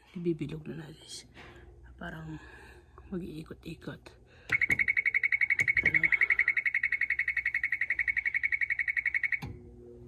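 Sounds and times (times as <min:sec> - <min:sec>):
electronic buzzer beeping: 0:04.5 - 0:09.5.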